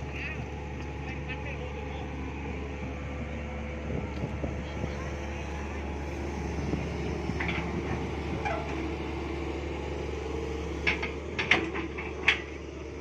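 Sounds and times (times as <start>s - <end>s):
excavator engine running: 0.0s - 13.0s
metallic clanks and squeaks: 8.3s - 8.9s.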